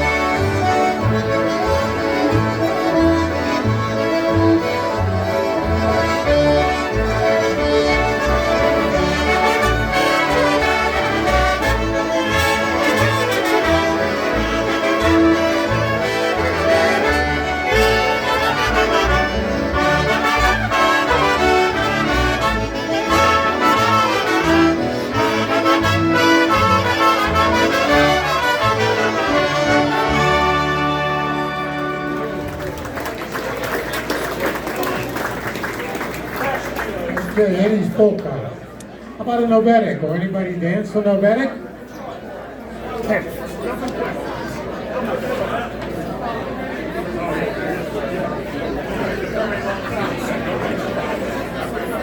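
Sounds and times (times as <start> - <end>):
concertinas playing a polka: 0.0 - 36.4.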